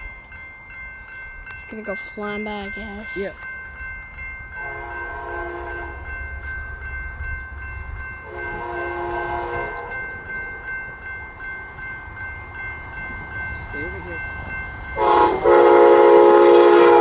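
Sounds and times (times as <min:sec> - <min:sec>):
low train rumble: 0:00.0 - 0:17.0
train air horn blasts: 0:04.6 - 0:06.0, 0:08.2 - 0:09.9, 0:15.0 - 0:17.0.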